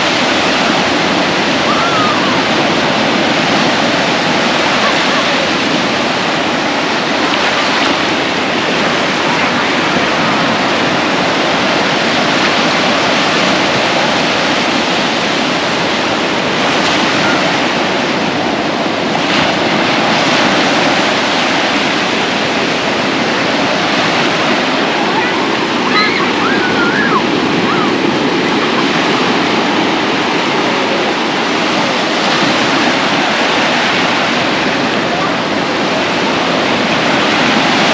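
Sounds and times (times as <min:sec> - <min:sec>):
ocean surf washing onto beach: 0:00.0 - 0:37.9.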